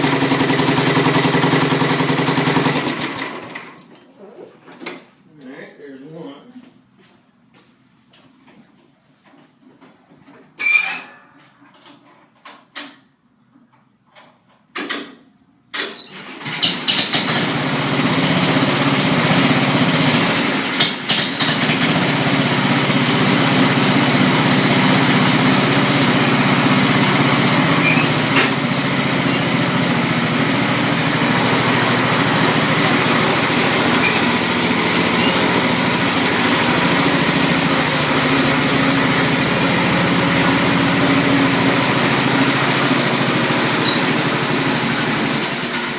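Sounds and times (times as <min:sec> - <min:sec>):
small engine starting and running: 0:00.0 - 0:03.9, 0:15.8 - 0:45.9.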